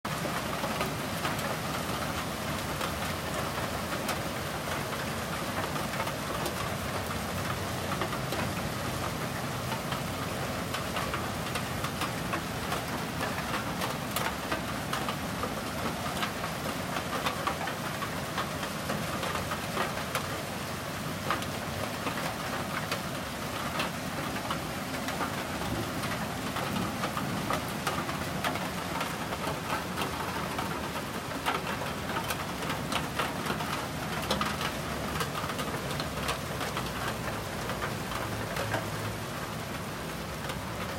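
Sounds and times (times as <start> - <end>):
raindrops ticking on surfaces: 0.0 - 40.9
steady rain hiss: 0.1 - 40.9.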